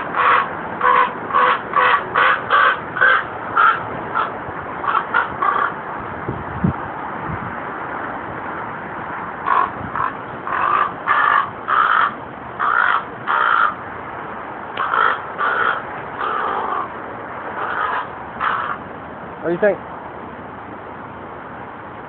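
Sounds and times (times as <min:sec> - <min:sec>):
raven calling harshly: 0:00.0 - 0:05.8, 0:09.4 - 0:13.8, 0:14.8 - 0:18.9
steady background noise: 0:00.0 - 0:22.0.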